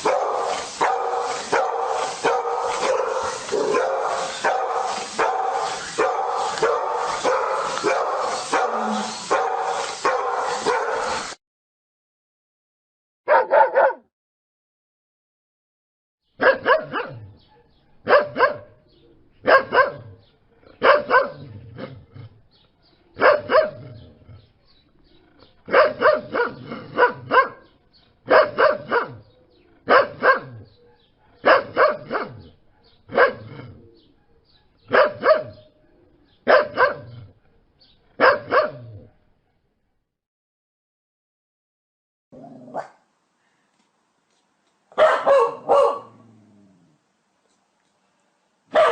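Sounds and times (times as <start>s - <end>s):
dog barking: 0.0s - 11.4s, 13.3s - 14.1s, 16.4s - 18.8s, 19.4s - 20.2s, 20.8s - 21.5s, 23.2s - 23.9s, 25.7s - 27.7s, 28.3s - 29.2s, 29.9s - 33.5s, 34.6s - 35.7s, 36.4s - 37.2s, 38.2s - 38.9s, 42.4s - 43.0s, 44.9s - 46.2s.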